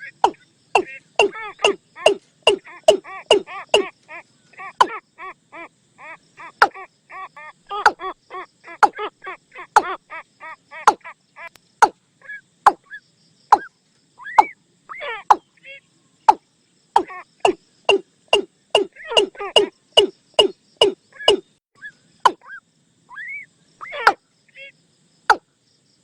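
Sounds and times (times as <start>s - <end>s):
bird calling hollow notes: 0.0s - 3.9s, 6.4s - 6.8s, 7.7s - 8.1s, 8.8s - 9.0s, 9.8s - 10.0s, 10.8s - 11.1s, 12.7s - 15.5s, 17.0s - 22.6s.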